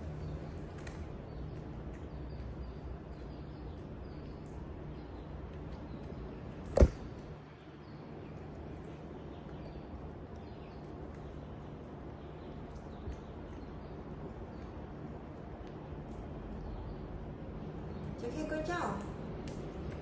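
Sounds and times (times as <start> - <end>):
low background hum: 0.0 - 20.0
sharp knock: 6.8 - 7.0.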